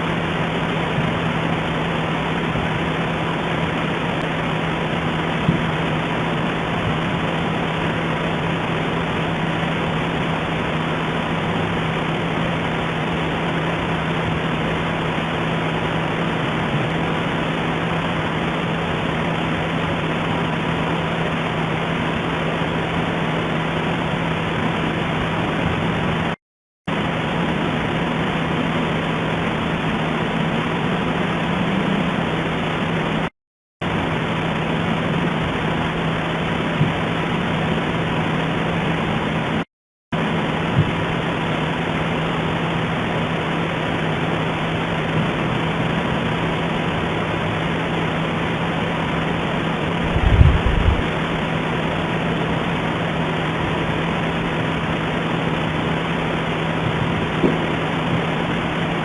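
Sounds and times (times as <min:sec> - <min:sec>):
low hum: 0:40.2 - 0:59.0.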